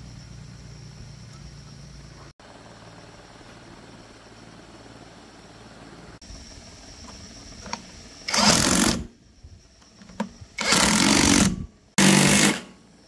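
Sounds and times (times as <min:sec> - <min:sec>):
power tool on metal: 0:08.3 - 0:09.1, 0:10.6 - 0:12.8.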